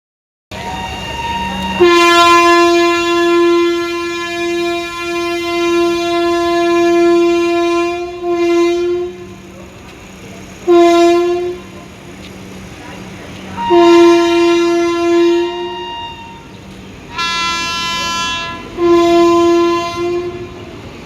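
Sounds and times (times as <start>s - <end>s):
train horn blasts: 0.5s - 9.5s, 10.6s - 11.8s, 13.6s - 20.7s.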